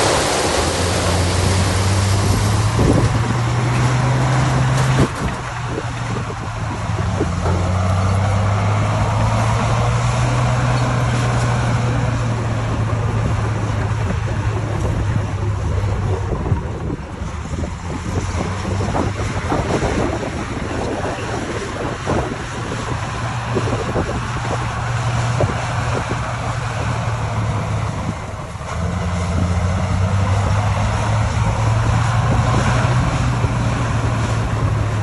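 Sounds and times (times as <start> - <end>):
heavy diesel engine droning: 0.0 - 35.0.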